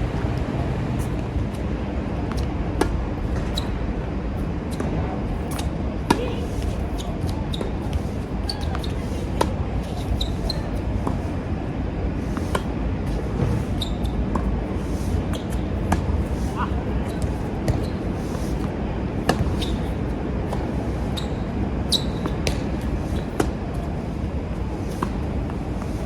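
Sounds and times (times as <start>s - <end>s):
tennis balls bouncing on court: 0.0s - 3.7s, 12.2s - 26.0s
wind on microphone: 0.0s - 6.0s
tennis balls struck by rackets: 12.2s - 21.2s, 22.0s - 24.2s.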